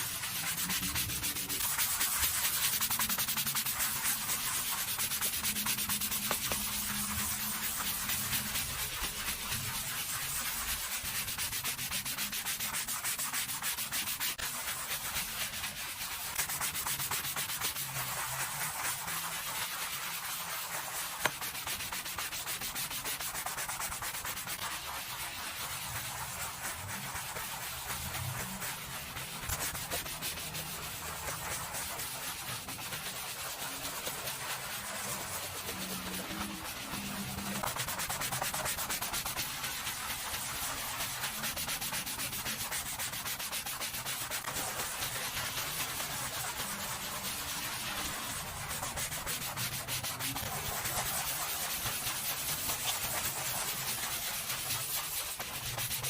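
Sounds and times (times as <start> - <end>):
scrubbing strokes on surface: 0.0 - 56.0.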